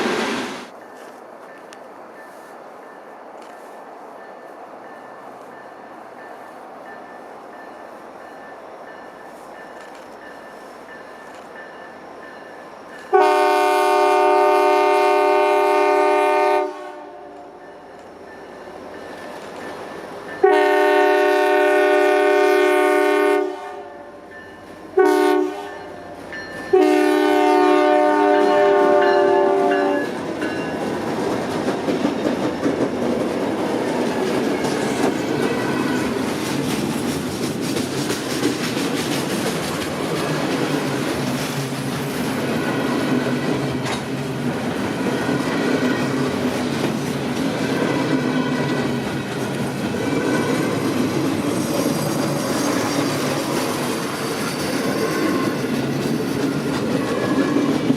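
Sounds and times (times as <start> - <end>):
train rumbling on rails: 0.0 - 57.9
locomotive air horn: 13.1 - 17.6, 20.4 - 24.1, 24.9 - 26.0, 26.7 - 30.1.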